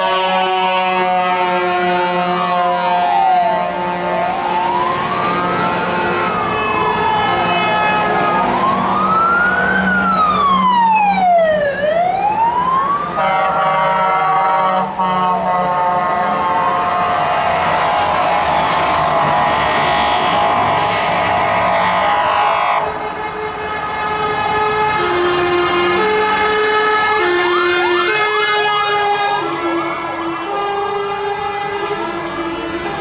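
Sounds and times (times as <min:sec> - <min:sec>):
siren wailing: 0:02.0 - 0:23.9
steady drone of held tones: 0:15.8 - 0:23.3.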